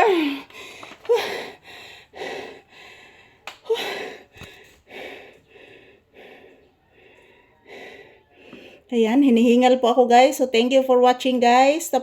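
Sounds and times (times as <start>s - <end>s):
woman gasping for breath: 0.0s - 8.8s.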